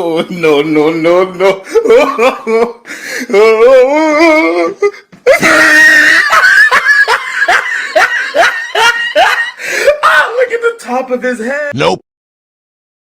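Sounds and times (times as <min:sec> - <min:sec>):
hysterical human laughter: 0:01.5 - 0:10.2.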